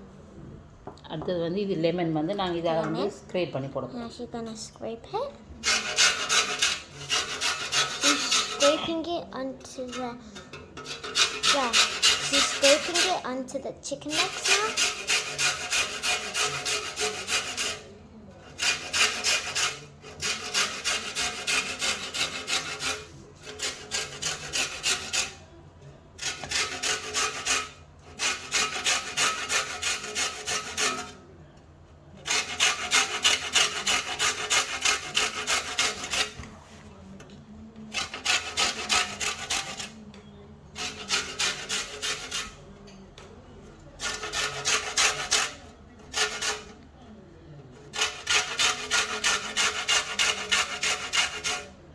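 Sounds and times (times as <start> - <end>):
lemon rasping on a grater: 5.6 - 10.2, 10.8 - 25.4, 26.2 - 31.2, 32.3 - 36.4, 37.9 - 40.0, 40.8 - 42.6, 44.0 - 46.8, 47.9 - 51.8.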